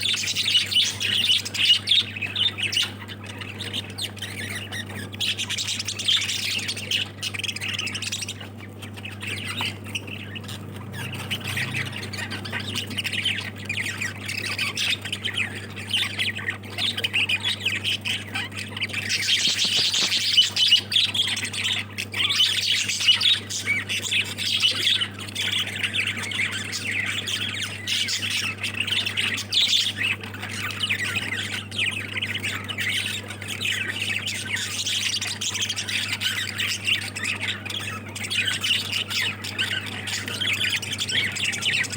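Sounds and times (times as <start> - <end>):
lovebirds chattering and squawking: 0.0 - 41.9.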